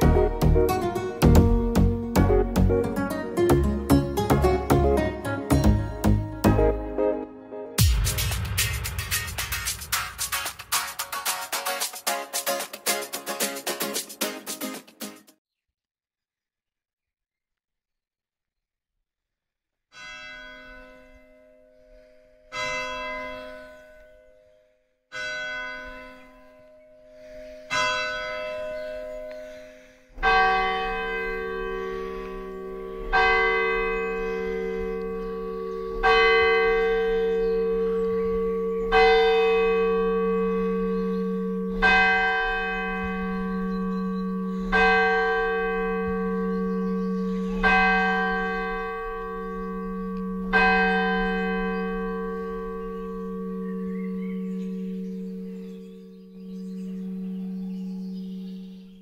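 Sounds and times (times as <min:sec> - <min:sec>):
deep church bell ringing: 0:20.0 - 0:59.0
lighter church bell: 0:20.0 - 0:59.0.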